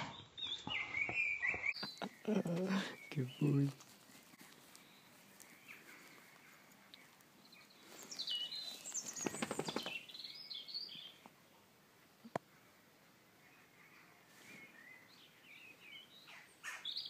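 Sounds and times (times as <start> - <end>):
songbird chirping and warbling: 0.0 - 11.4, 12.2 - 17.0
faint background noise: 0.0 - 17.0
close rustling: 1.8 - 10.1.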